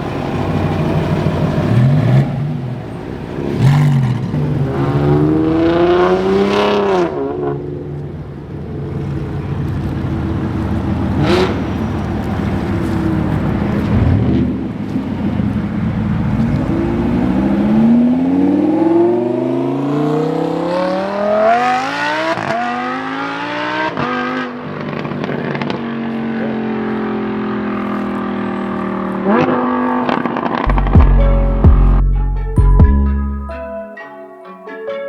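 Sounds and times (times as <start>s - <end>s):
car engine accelerating: 9.0s - 14.6s, 16.2s - 33.6s.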